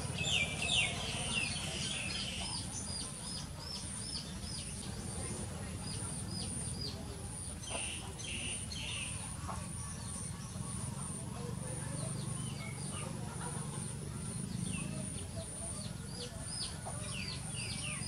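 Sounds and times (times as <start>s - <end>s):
bird calling with high chirps: 0.0s - 5.0s.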